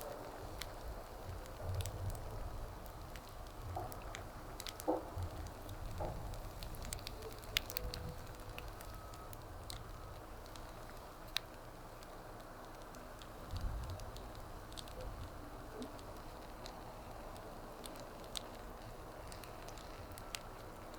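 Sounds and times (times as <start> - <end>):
sharp pops from burning wood: 0.0 - 20.9
wood fire crackling: 0.0 - 20.9.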